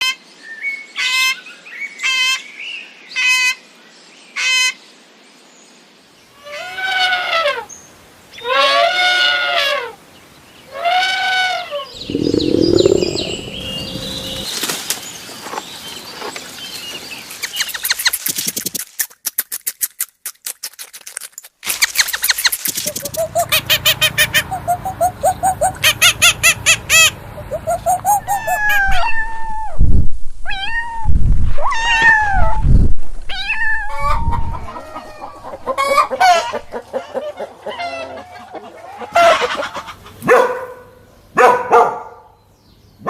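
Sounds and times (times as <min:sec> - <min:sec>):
rough low animal noise: 0:11.8 - 0:14.6
farm animal calls: 0:12.0 - 0:14.5, 0:23.0 - 0:29.2, 0:33.9 - 0:40.2.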